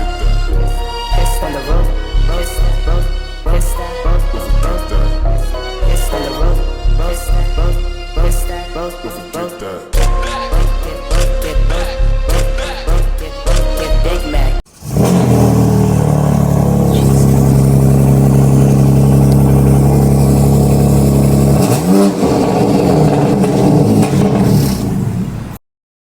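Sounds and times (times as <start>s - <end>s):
car engine idling and revving: 14.7s - 25.6s.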